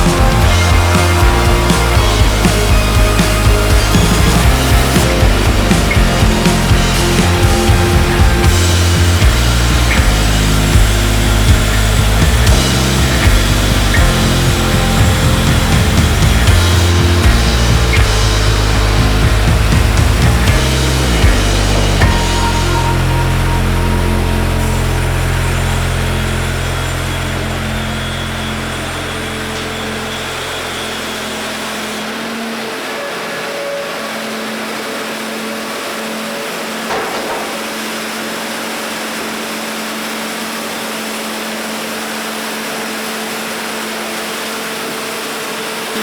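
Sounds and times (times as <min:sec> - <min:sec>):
background music: 0:00.0 - 0:28.2
diesel engine hum: 0:00.0 - 0:33.3
sawmill machine running: 0:00.0 - 0:46.0
machine knock: 0:36.8 - 0:38.4.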